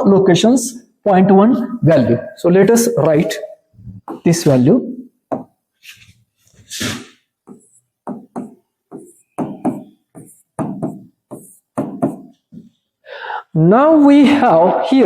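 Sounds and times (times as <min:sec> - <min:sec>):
pen scratching on paper: 0:07.0 - 0:12.5.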